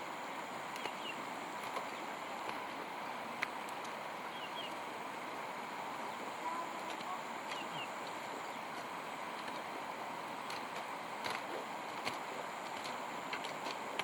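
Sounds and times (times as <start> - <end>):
outdoor background hiss: 0.0 - 14.0
faint high steady tone: 6.1 - 8.7.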